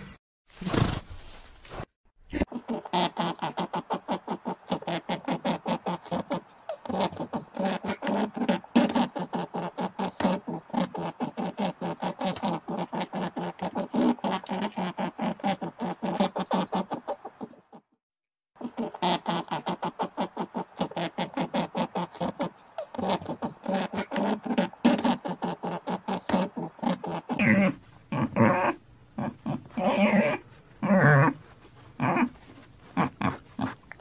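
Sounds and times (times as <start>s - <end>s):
rabbits chewing: 2.6s - 17.6s, 18.6s - 27.8s.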